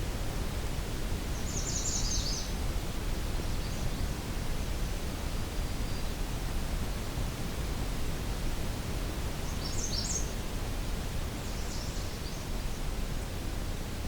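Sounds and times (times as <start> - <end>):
songbird singing: 9.5 - 10.4.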